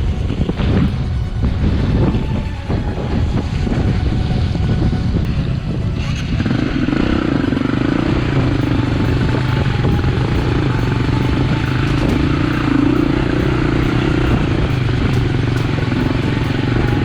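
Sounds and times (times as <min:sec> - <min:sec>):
dirt bike engine under throttle: 0:05.1 - 0:17.0.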